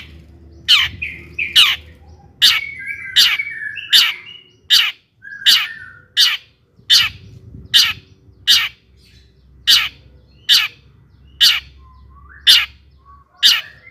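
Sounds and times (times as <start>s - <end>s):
shrike harsh rasping calls: 0.7s - 7.2s.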